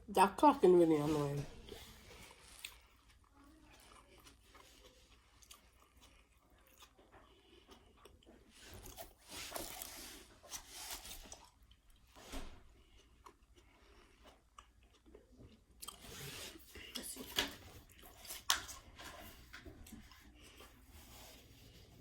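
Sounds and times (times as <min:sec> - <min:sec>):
person chewing crunchy salad: 0:01.6 - 0:17.1.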